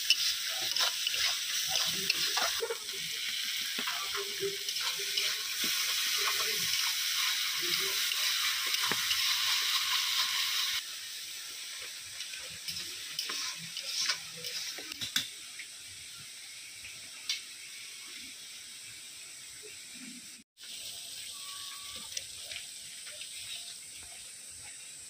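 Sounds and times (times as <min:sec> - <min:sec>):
spatula scraping a pan: 0:00.0 - 0:10.8, 0:12.7 - 0:15.0
potatoes and onions sizzling: 0:00.0 - 0:25.0.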